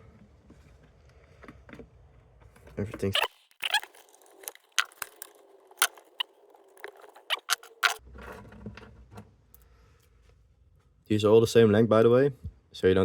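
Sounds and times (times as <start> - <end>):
small plastic parts clicking: 3.2 - 8.0.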